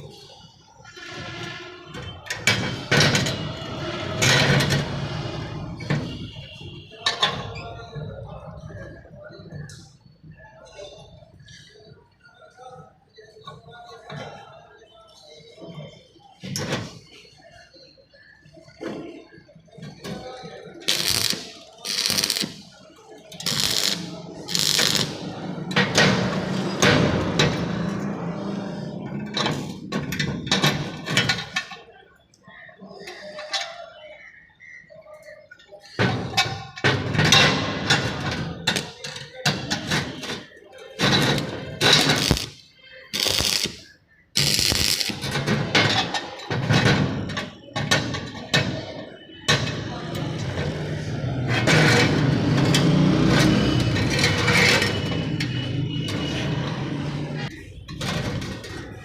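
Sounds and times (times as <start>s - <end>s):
welding arc crackling: 20.9s - 22.7s, 23.4s - 26.0s, 41.0s - 46.0s
welding machine hum: 20.9s - 22.7s, 23.4s - 25.3s, 41.0s - 45.5s.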